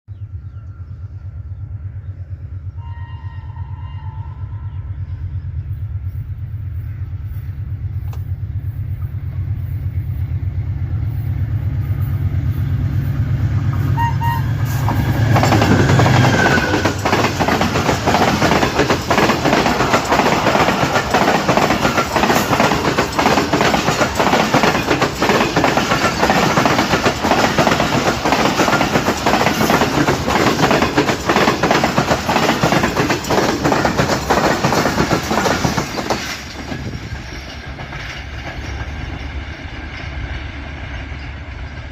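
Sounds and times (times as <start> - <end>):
locomotive rumbling: 0.1 - 41.9
train horn blast: 2.6 - 5.6, 13.6 - 17.0
train wheels clattering over rails: 14.7 - 41.9.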